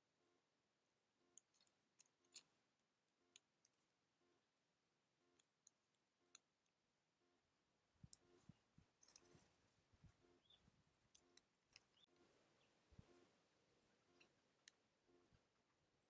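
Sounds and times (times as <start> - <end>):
faint clicks and taps: 8.0 - 12.1
tiny high chirps: 10.1 - 15.4.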